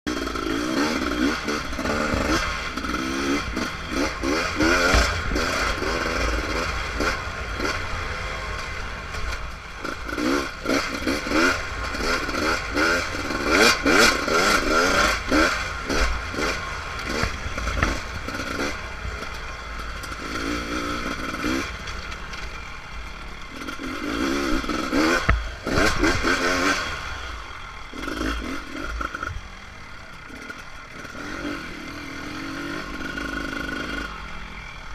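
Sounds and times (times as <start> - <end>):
dirt bike engine revving: 0.1 - 34.9
bike knocks and clatter: 4.6 - 5.5.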